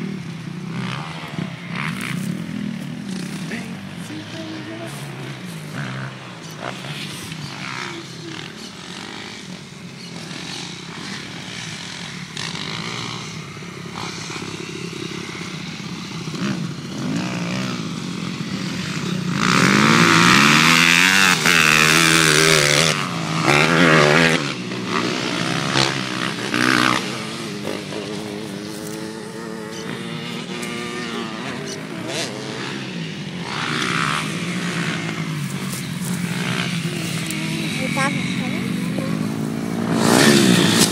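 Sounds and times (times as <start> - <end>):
motocross bike engines revving: 0.0 - 40.9
motorbike passing close: 0.0 - 40.9.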